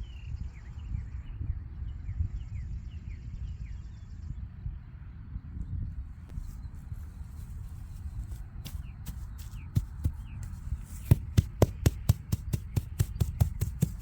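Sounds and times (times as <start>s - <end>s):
rapid sharp knocks: 11.0s - 14.0s.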